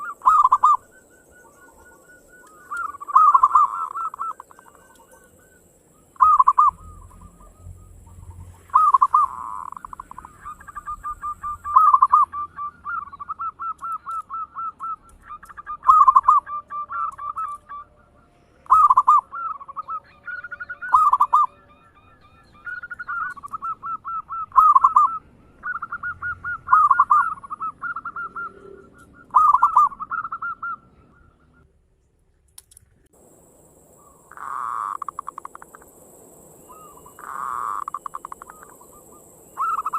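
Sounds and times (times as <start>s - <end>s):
dove cooing and singing: 0.0s - 31.6s, 36.5s - 39.9s.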